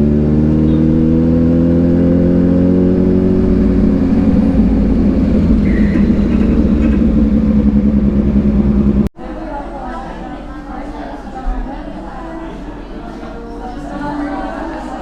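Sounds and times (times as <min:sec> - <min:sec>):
motorcycle engine accelerating: 0:00.0 - 0:09.1.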